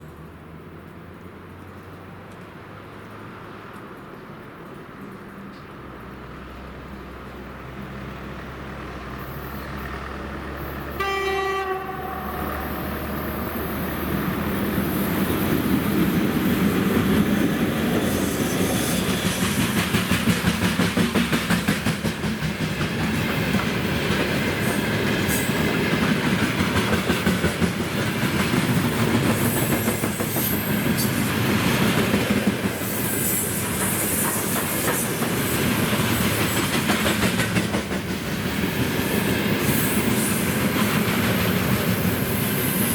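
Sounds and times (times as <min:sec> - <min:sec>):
locomotive horn blast: 0:10.9 - 0:13.3
train wheels clattering on rail joints: 0:13.5 - 0:42.9.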